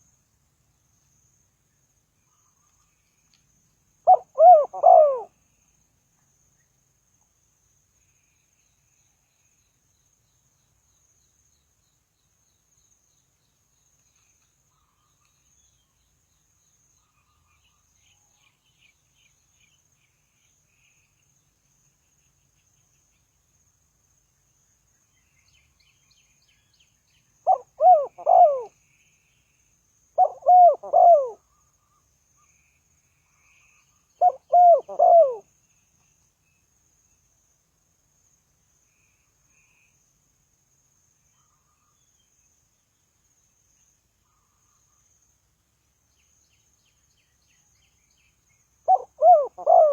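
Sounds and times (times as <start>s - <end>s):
faint high insect whine: 0.0s - 49.9s
dove cooing: 4.1s - 5.3s, 27.5s - 28.7s, 30.2s - 31.4s, 34.2s - 35.4s, 48.9s - 49.9s.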